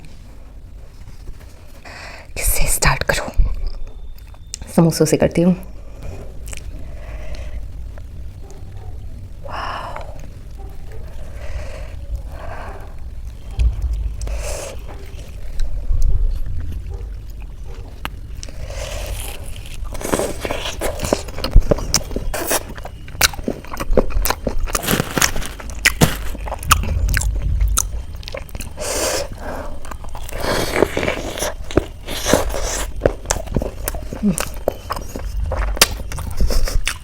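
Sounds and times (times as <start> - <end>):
chewing crisp food: 9.9 - 37.0.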